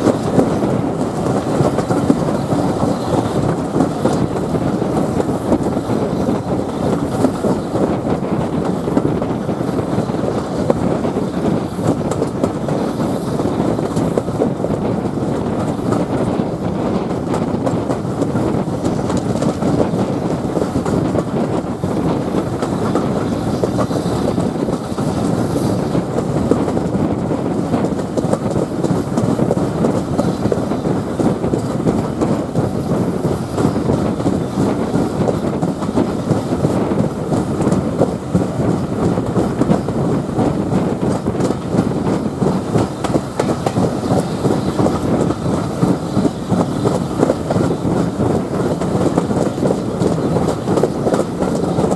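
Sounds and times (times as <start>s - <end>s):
train wheels rumbling on rails: 0.0s - 51.9s.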